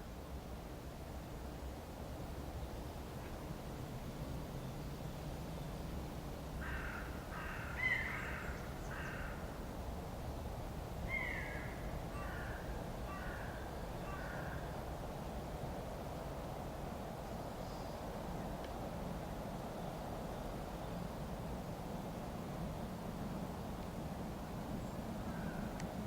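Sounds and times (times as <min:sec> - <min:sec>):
bird cawing: 0:06.6 - 0:09.5, 0:11.1 - 0:14.7, 0:25.2 - 0:25.7.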